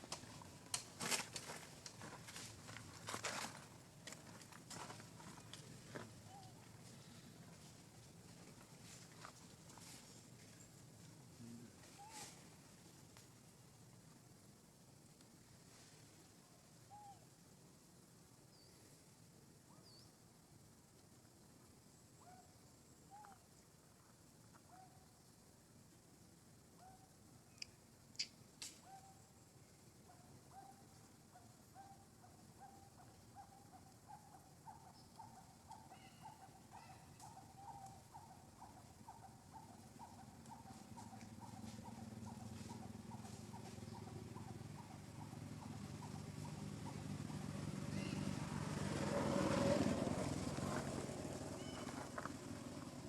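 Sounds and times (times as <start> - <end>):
faint background hiss: 0.0 - 53.0
faint ticks: 13.1 - 13.4, 27.5 - 28.9.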